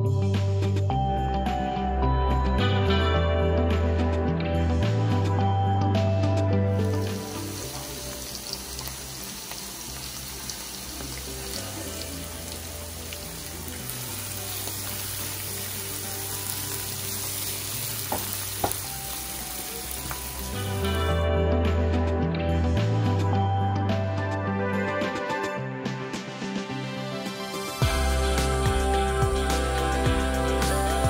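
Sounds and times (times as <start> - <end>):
onions sizzling in oil: 6.8 - 21.2
light knocks on pan: 18.1 - 18.8.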